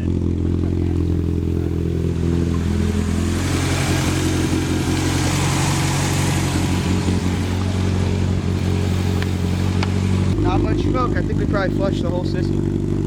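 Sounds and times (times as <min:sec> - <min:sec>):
car engine running: 0:00.0 - 0:13.0
rushing hiss: 0:01.0 - 0:10.4.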